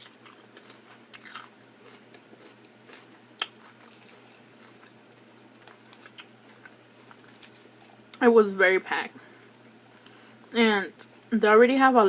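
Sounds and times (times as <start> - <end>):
person chewing salad: 0.0 - 8.2, 9.8 - 10.3.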